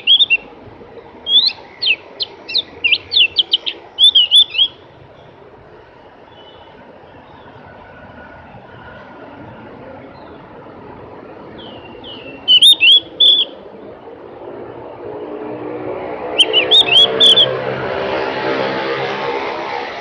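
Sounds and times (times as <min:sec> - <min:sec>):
bird chirping whistles: 0:00.0 - 0:00.4, 0:01.2 - 0:04.8, 0:11.6 - 0:13.6, 0:16.4 - 0:17.6
vehicle engine hum: 0:00.0 - 0:20.0.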